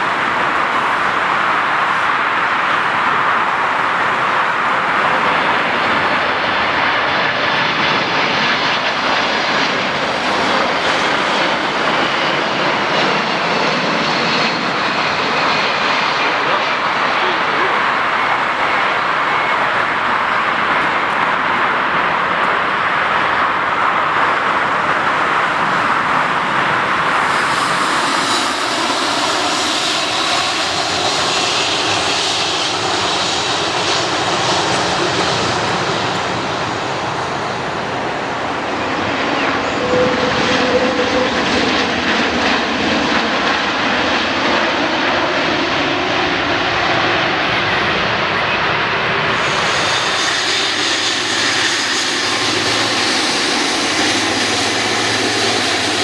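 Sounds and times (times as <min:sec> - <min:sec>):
aircraft engines running: 0:00.0 - 0:56.0
high thin whine: 0:26.8 - 0:29.4.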